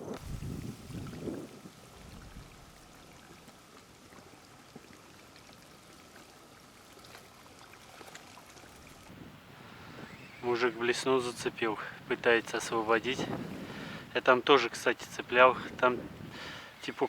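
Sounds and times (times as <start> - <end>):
wind: 0.0 - 17.0
lapping water: 0.9 - 9.9.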